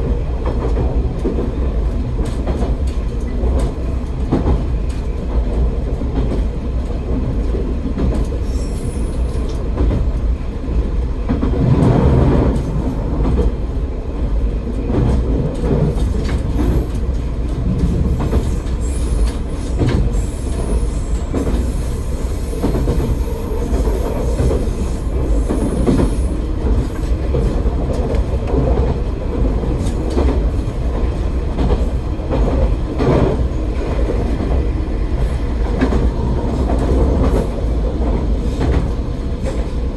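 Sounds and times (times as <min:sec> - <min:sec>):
railcar engine and wheels rumbling: 0:00.0 - 0:39.9
faint high wheel squeal: 0:08.4 - 0:09.5, 0:18.3 - 0:26.4.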